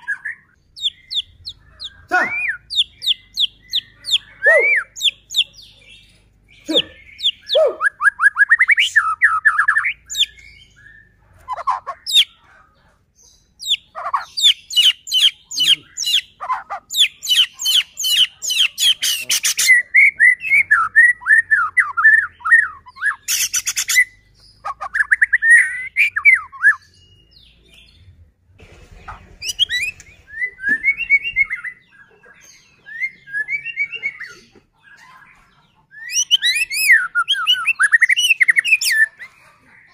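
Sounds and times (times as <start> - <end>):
songbird singing whistled phrases: 0.0 - 5.5, 6.6 - 12.3, 16.9 - 27.5, 29.4 - 32.0, 32.7 - 34.4, 35.9 - 39.3.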